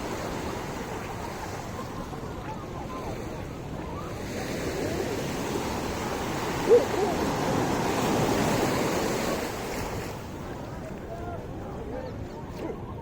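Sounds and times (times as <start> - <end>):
faint voices: 0.0 - 8.9, 10.0 - 13.0
surf washing onto beach: 0.0 - 11.6.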